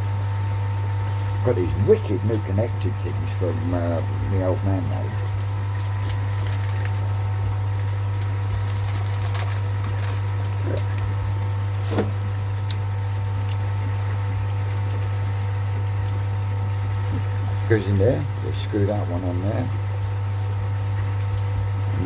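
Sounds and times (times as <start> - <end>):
electric pump humming: 0.0 - 22.0.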